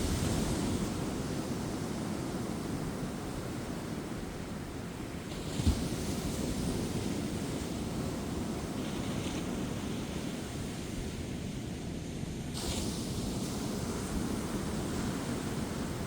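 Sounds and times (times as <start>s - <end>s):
waves breaking on beach: 12.4s - 16.0s.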